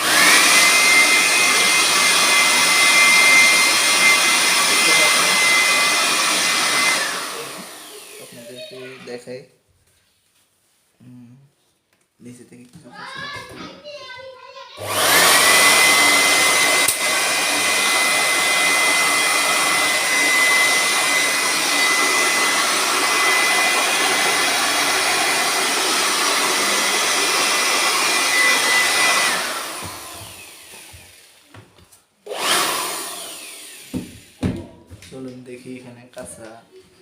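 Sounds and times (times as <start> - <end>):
blower-vacuum air rush and whine: 0.0 - 8.4, 14.8 - 31.0.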